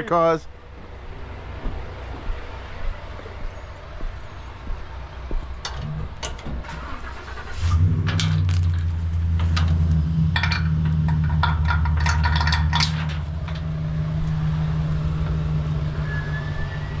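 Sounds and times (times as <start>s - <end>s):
vehicle engine running: 0.0s - 17.0s
metallic clicks and clanks: 5.6s - 15.4s.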